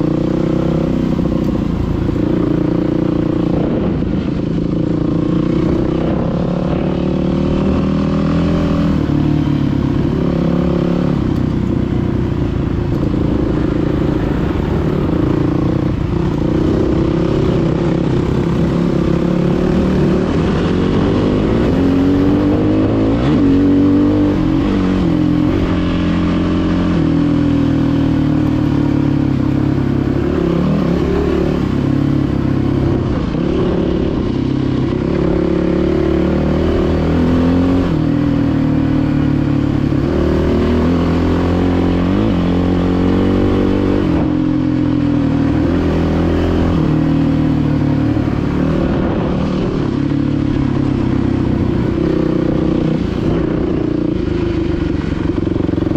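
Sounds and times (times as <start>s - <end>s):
dirt bike engine revving: 13.1s - 55.9s.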